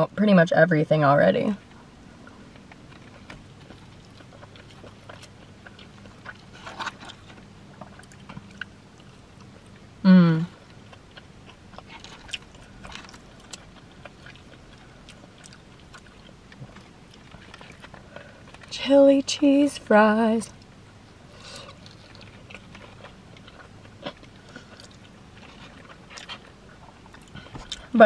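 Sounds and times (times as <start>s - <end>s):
chewing and wet mouth clicks: 2.2s - 9.9s, 10.6s - 18.7s
person humming: 10.0s - 10.5s.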